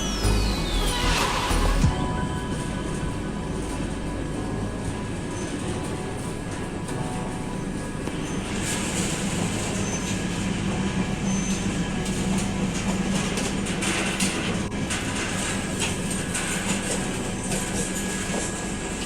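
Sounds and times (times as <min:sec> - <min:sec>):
train rumbling on track: 0:00.0 - 0:19.0
wheels clacking and knocking: 0:08.1 - 0:19.0.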